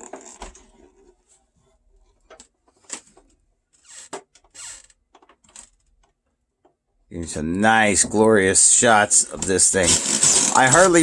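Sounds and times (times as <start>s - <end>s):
plastic scraping: 8.0s - 11.0s.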